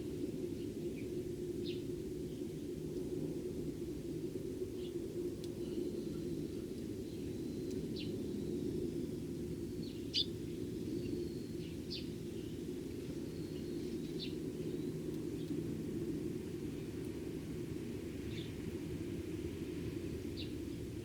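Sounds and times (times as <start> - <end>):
sparrows chirping: 9.7 - 15.5, 20.3 - 20.6.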